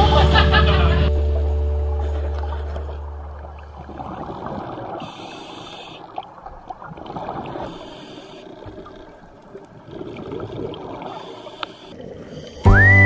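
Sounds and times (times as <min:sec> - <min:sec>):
bubbles rumbling and gurgling: 0:00.0 - 0:13.0
regulator hissing on inhale: 0:05.0 - 0:06.2, 0:07.7 - 0:09.0, 0:11.1 - 0:12.8.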